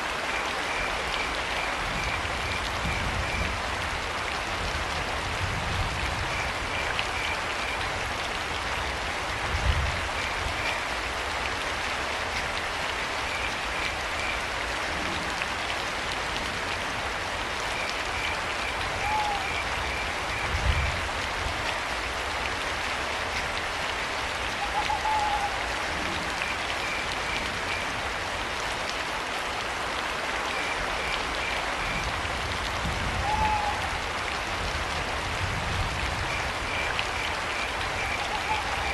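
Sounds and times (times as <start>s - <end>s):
steady rain falling: 0.0s - 38.9s
owl hooting: 19.0s - 19.6s, 24.6s - 25.6s, 33.2s - 33.8s.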